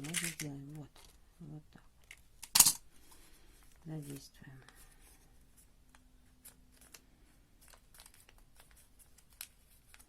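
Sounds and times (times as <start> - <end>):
paper rustling being folded: 3.6 - 10.0.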